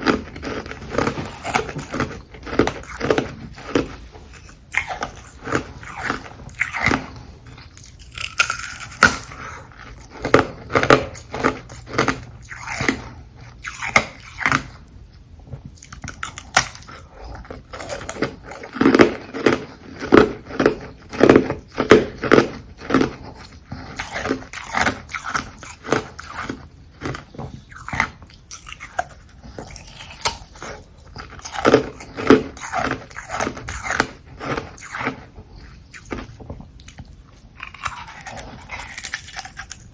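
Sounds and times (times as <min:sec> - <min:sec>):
ice crunching being chewed: 0:00.0 - 0:14.9, 0:15.6 - 0:39.9.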